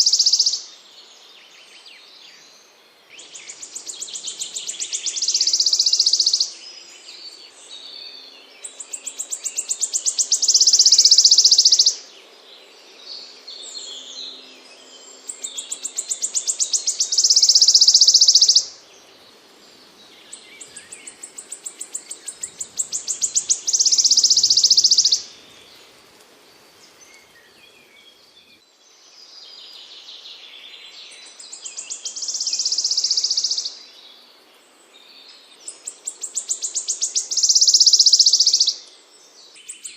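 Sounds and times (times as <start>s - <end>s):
faint bird chirps: 0.0s - 12.0s, 13.2s - 25.9s, 26.8s - 39.9s
songbird trilling song: 0.0s - 26.0s, 26.8s - 39.9s.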